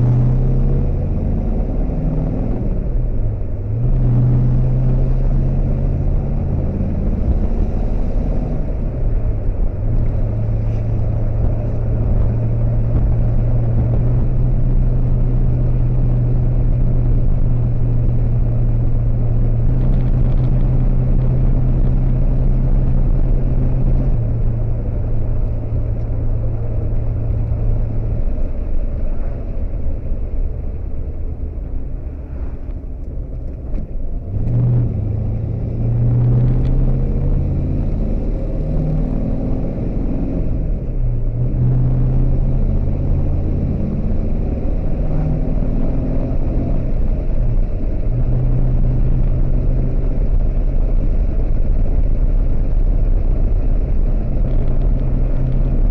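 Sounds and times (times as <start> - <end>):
car engine running: 0.0 - 55.9.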